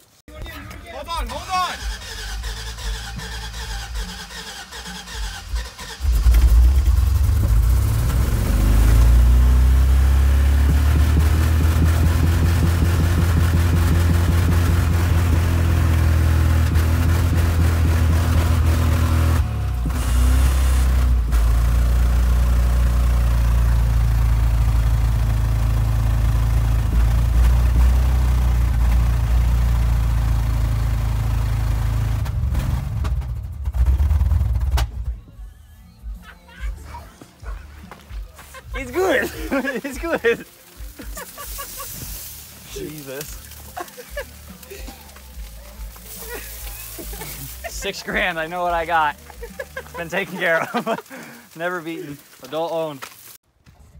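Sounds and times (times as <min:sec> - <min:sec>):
truck engine revving: 0:01.0 - 0:35.2, 0:38.7 - 0:51.7
hiss: 0:39.4 - 0:47.9.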